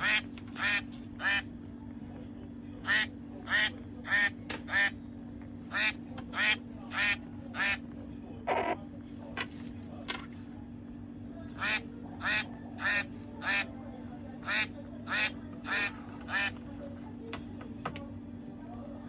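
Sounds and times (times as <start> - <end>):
toy duck quacking: 0.0 - 1.5, 2.8 - 4.9, 5.7 - 7.8, 11.6 - 13.7, 14.4 - 16.6
steady low hum: 0.0 - 19.0.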